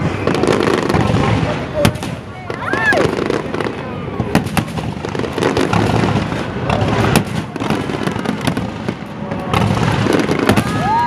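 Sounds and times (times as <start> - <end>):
continuous rumble: 0.0 - 11.0
fireworks bangs and crackling pops: 0.0 - 11.0.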